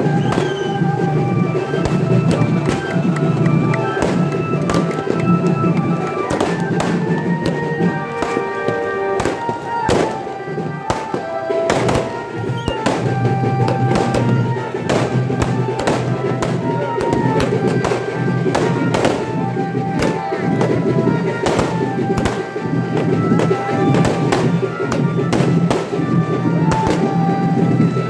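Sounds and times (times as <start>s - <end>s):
background music: 0.0s - 28.0s
firecrackers bursting: 0.0s - 28.0s.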